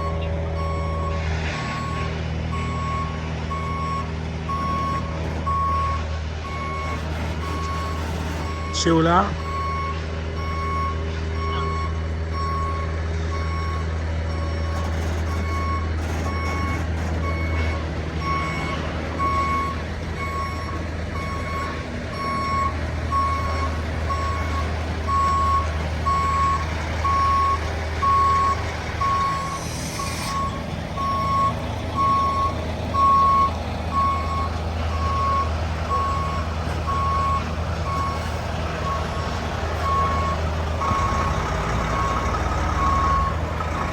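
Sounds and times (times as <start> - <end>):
diesel engine rumbling: 0.0 - 43.9
air brake hiss: 29.3 - 30.6.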